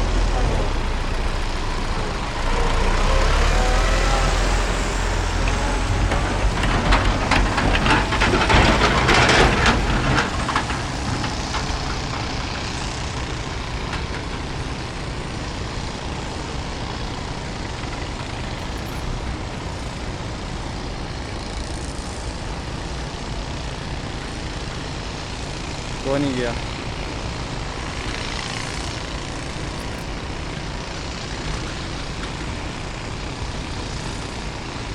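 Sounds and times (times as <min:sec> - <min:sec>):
crackling: 0:00.0 - 0:15.1, 0:17.9 - 0:20.4, 0:29.7 - 0:30.8.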